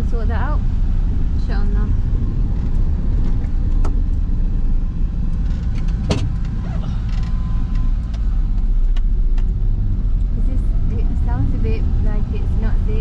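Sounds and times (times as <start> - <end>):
van engine and road rumble: 0.0 - 13.0
body rattles and knocks: 1.1 - 11.0.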